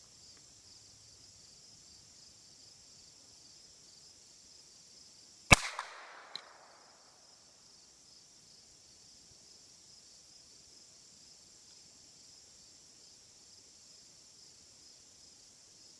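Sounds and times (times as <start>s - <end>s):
insects chirping: 0.0s - 15.9s
rifle shot echoing: 5.5s - 7.1s.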